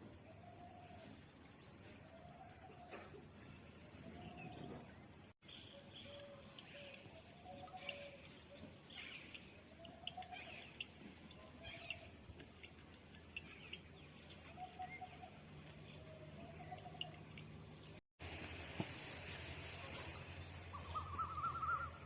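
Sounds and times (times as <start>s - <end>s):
faint bird calls: 19.8s - 22.0s.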